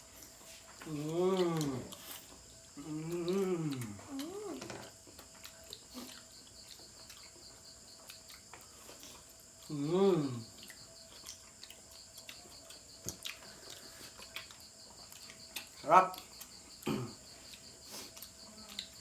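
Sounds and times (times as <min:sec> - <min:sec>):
insect chirring: 0:00.0 - 0:19.0
quiet eating sounds: 0:00.0 - 0:19.0
person humming mmm: 0:00.8 - 0:02.1, 0:02.8 - 0:04.8, 0:09.6 - 0:10.7.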